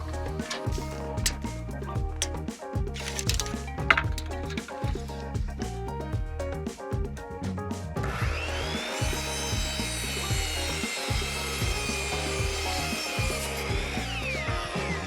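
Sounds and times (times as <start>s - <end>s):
background music: 0.0s - 15.0s
power saw cutting wood: 0.4s - 1.5s, 8.0s - 15.0s.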